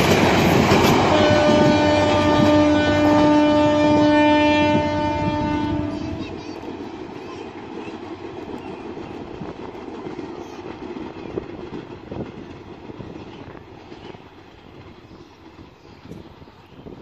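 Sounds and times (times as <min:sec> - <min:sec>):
train cars rumbling: 0:00.0 - 0:17.0
wheels clicking over rail joints: 0:06.0 - 0:17.0.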